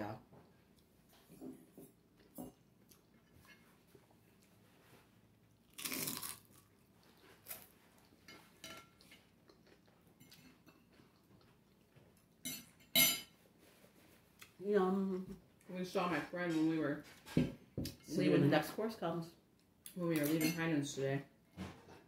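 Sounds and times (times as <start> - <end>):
potato chip crunching: 5.6 - 7.7.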